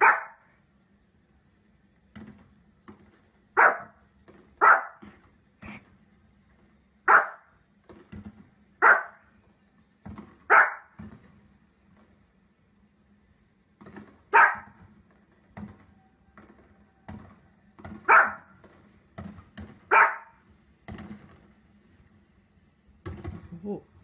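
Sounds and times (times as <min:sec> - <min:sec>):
dog barking: 0:00.0 - 0:00.5, 0:03.6 - 0:04.0, 0:04.6 - 0:05.1, 0:07.1 - 0:07.5, 0:08.8 - 0:09.2, 0:10.5 - 0:11.0, 0:14.3 - 0:14.8, 0:18.0 - 0:18.5, 0:19.9 - 0:20.4.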